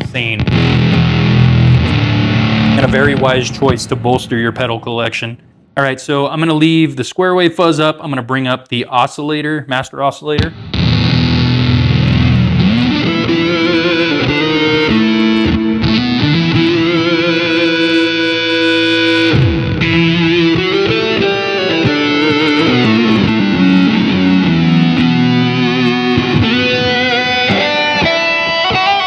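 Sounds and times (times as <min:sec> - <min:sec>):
electric guitar through synth pedal: 0:00.0 - 0:04.4, 0:10.4 - 0:29.0.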